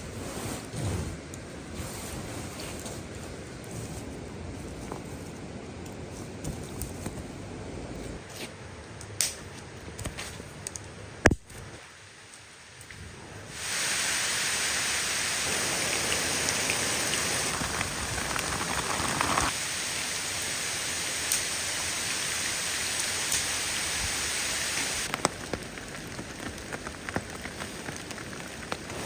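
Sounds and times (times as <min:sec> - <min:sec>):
rain on a tarp: 0:11.7 - 0:29.0
raindrops ticking: 0:15.5 - 0:19.5, 0:25.0 - 0:29.0.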